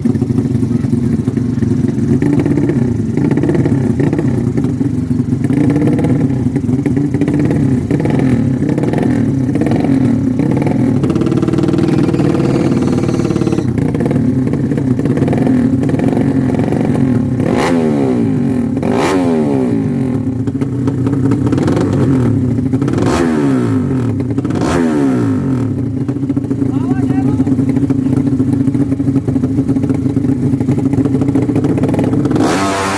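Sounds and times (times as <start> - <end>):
motorcycle engines revving: 0.3 - 32.9
motorcycles passing by: 9.5 - 13.9.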